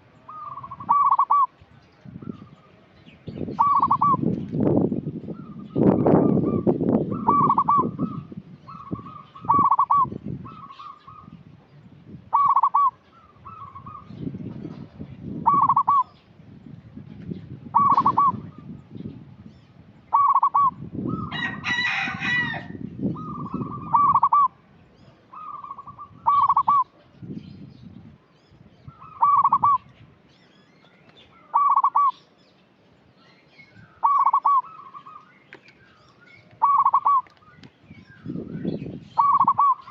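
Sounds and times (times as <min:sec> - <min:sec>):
dove cooing: 0:00.3 - 0:01.5, 0:03.6 - 0:04.2, 0:05.4 - 0:11.3, 0:12.3 - 0:14.1, 0:15.4 - 0:16.2, 0:17.7 - 0:18.7, 0:20.1 - 0:24.6, 0:25.3 - 0:27.0, 0:29.0 - 0:29.9, 0:31.4 - 0:32.2, 0:34.0 - 0:35.2, 0:36.5 - 0:37.4, 0:39.2 - 0:39.9.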